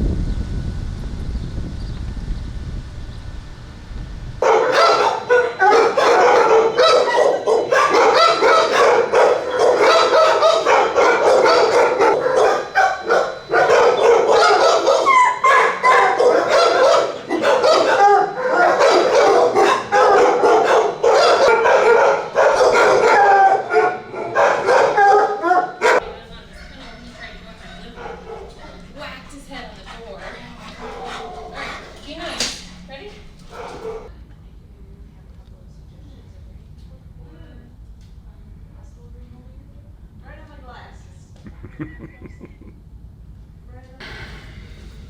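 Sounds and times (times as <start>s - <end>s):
many dogs barking and yelping: 4.4s - 32.6s, 33.5s - 34.1s.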